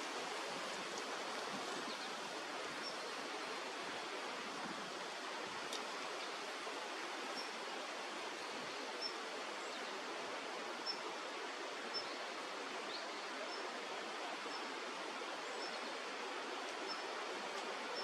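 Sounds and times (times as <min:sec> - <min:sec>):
stream water rushing: 0:00.0 - 0:18.0.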